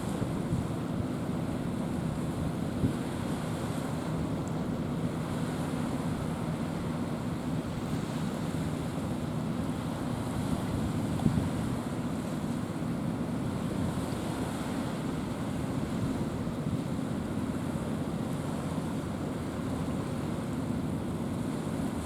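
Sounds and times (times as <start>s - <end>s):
sea water: 0.0s - 22.0s
wind buffeting microphone: 10.2s - 11.8s.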